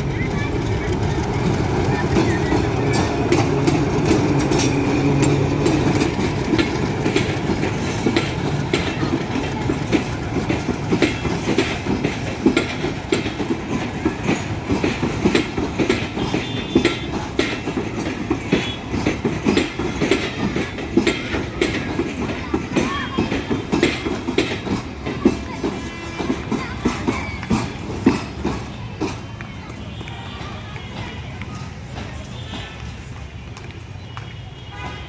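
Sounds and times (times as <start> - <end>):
locomotive engine drone: 0.0 - 17.4
train wheels clattering over rail joints: 0.0 - 33.8.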